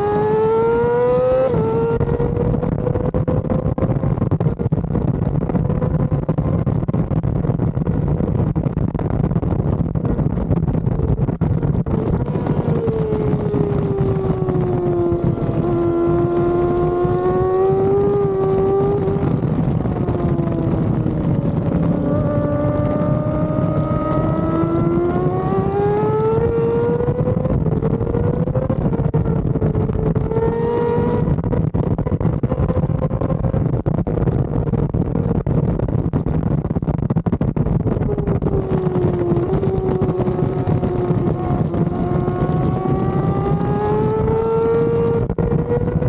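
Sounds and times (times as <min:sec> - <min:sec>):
racing motorcycle engine: 0:00.0 - 0:08.0, 0:10.0 - 0:35.5, 0:37.6 - 0:46.0
wind rushing over microphone: 0:00.0 - 0:46.0.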